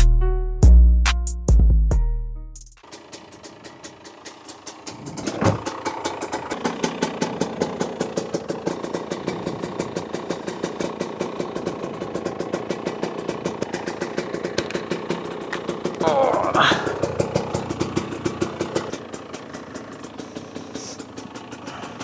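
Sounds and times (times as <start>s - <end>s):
dirt bike engine idling: 2.8s - 22.0s
engine revving blip: 5.0s - 5.8s.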